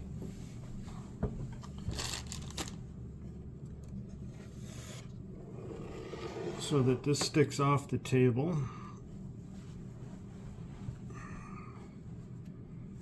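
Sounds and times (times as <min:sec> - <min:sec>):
low room hum: 0:00.0 - 0:13.0
case scraping on table: 0:04.8 - 0:07.3.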